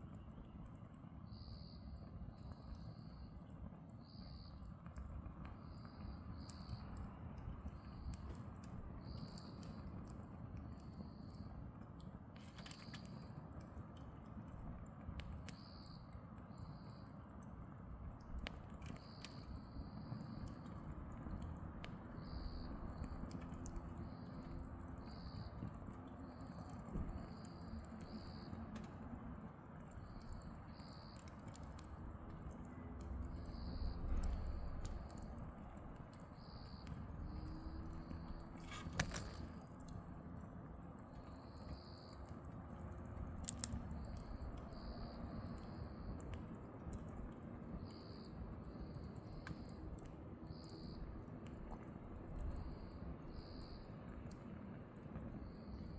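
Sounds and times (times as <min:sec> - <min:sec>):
firewood crackling and popping: 0:00.0 - 0:55.9
cricket chirping: 0:01.3 - 0:03.3, 0:04.0 - 0:04.6, 0:05.5 - 0:07.0, 0:18.9 - 0:20.8, 0:22.2 - 0:28.6, 0:30.0 - 0:31.9, 0:33.2 - 0:35.6, 0:36.2 - 0:39.7, 0:41.2 - 0:42.3, 0:43.4 - 0:46.3, 0:47.2 - 0:49.8, 0:50.5 - 0:51.1, 0:52.4 - 0:54.0, 0:55.4 - 0:55.9.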